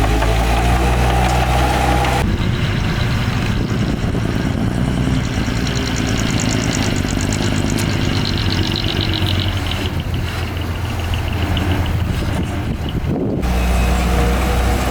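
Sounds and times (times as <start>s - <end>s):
heavy diesel engine rumbling: 0.0s - 14.9s
fast high-pitched ticking: 2.2s - 13.1s.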